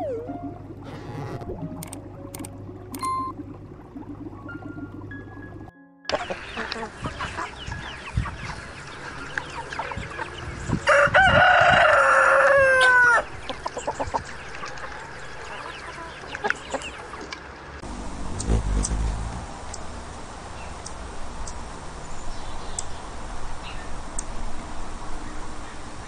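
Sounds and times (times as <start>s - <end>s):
rooster crowing: 10.9s - 13.2s.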